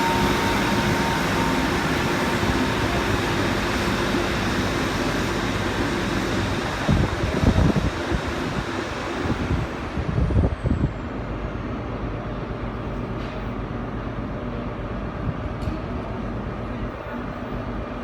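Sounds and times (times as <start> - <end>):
faint high whine: 0.0 - 5.3
diesel train engines rumbling: 0.0 - 18.0.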